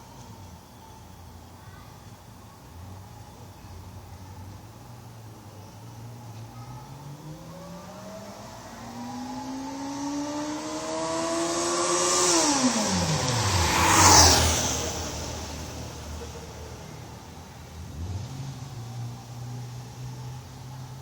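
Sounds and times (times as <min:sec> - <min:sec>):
motorcycle engine passing by: 0:06.8 - 0:20.9.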